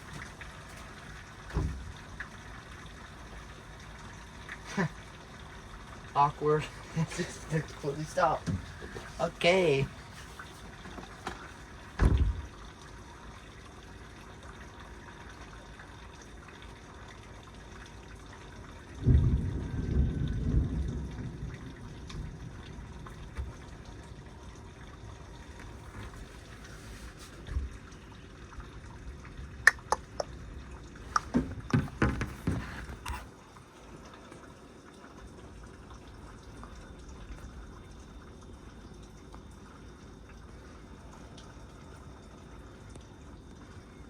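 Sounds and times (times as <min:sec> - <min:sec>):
heavy rain falling: 0:00.0 - 0:14.5, 0:18.6 - 0:28.4
water running and dripping: 0:00.0 - 0:44.0.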